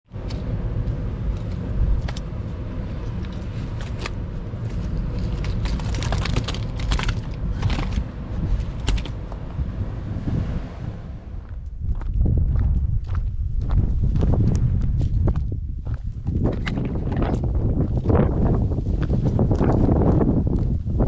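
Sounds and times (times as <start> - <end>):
wind buffeting microphone: 0.2 - 21.0
clicks and crackles: 1.3 - 2.4, 3.0 - 9.4.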